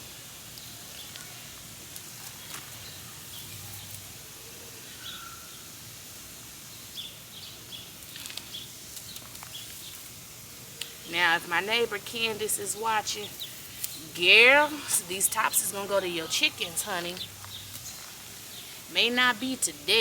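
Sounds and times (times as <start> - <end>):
faint steady hiss: 0.0 - 20.0
faint bird chirps: 4.7 - 5.7.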